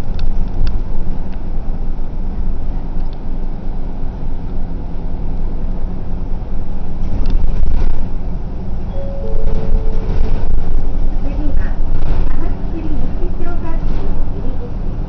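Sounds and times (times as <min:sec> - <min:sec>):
bus engine and road rumble: 0:00.0 - 0:15.0
two-note tone: 0:08.9 - 0:10.7.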